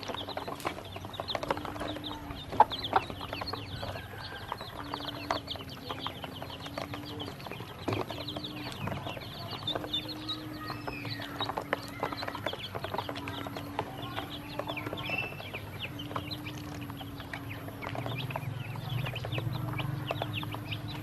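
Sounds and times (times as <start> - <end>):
ducklings peeping: 0.0 - 21.0.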